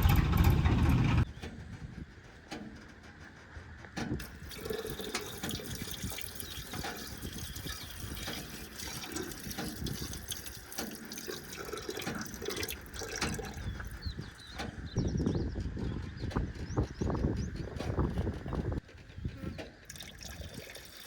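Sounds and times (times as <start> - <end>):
water splashing and sloshing: 4.0 - 14.9, 19.6 - 21.0.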